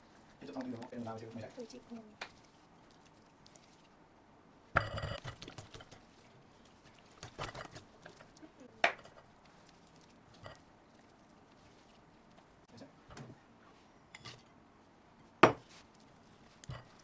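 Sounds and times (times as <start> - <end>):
kitchenware clinking: 4.8 - 6.0, 7.2 - 9.3, 14.0 - 14.5, 15.4 - 15.7.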